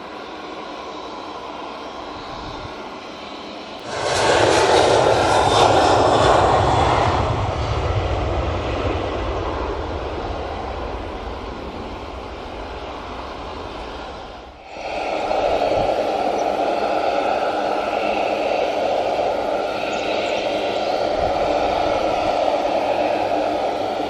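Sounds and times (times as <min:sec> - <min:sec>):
turboprop aircraft passing: 0:00.0 - 0:24.0.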